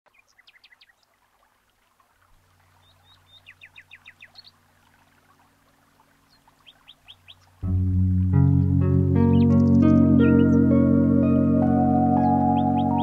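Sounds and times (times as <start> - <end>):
faint birdsong chirps: 0.1 - 1.2, 2.5 - 7.6, 9.2 - 13.0.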